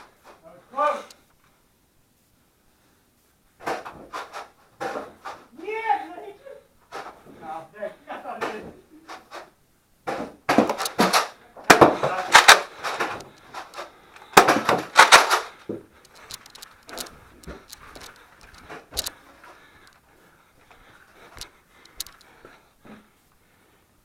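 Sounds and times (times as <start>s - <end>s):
loud crack: 10.1s - 19.1s.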